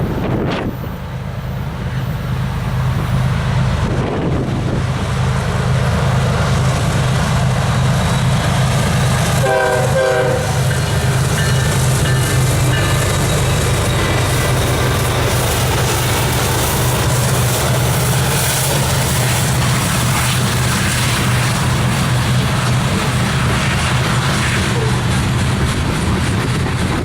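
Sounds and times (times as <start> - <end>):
diesel locomotive engine drone: 0.0 - 27.0
locomotive air horn: 9.4 - 10.8.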